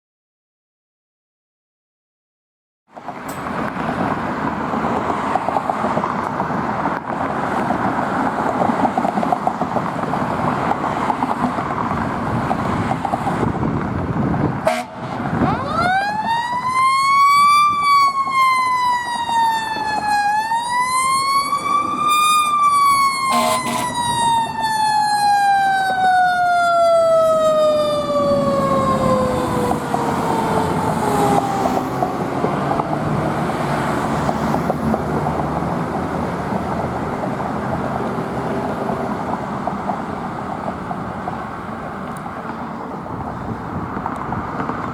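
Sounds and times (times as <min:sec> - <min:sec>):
road noise: 0:02.9 - 0:44.9
truck engine rumble: 0:03.0 - 0:44.9
fire engine siren wailing: 0:14.6 - 0:44.7.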